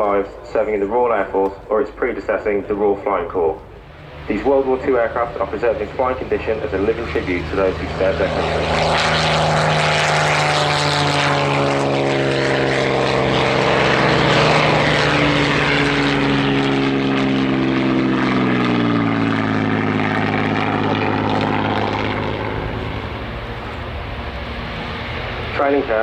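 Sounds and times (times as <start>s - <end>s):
propeller aircraft flying past: 0.0s - 26.0s.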